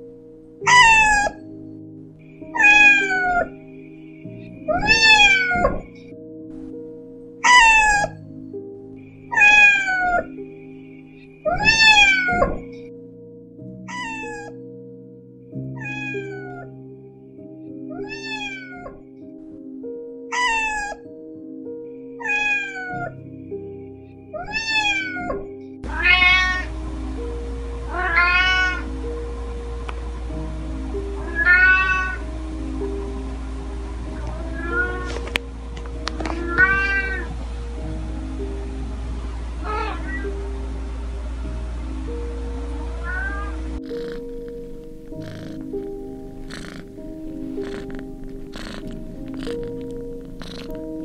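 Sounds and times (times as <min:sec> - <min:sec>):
soft background music: 0:00.0 - 0:51.0
cats meowing: 0:00.7 - 0:01.4, 0:02.4 - 0:03.6, 0:04.2 - 0:06.0, 0:07.4 - 0:08.2, 0:09.3 - 0:10.4, 0:11.4 - 0:12.7, 0:13.9 - 0:14.6, 0:15.8 - 0:16.7, 0:17.9 - 0:19.0, 0:20.3 - 0:21.0, 0:22.2 - 0:23.2, 0:24.4 - 0:26.7, 0:27.9 - 0:28.9, 0:31.2 - 0:32.2, 0:34.2 - 0:35.3, 0:36.2 - 0:37.3, 0:39.6 - 0:40.3, 0:42.9 - 0:51.0
steady hiss: 0:01.5 - 0:06.9, 0:08.3 - 0:12.8, 0:25.8 - 0:51.0.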